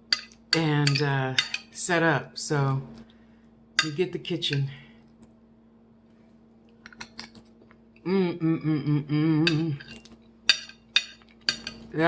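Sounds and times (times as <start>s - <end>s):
woman humming: 8.0s - 9.9s.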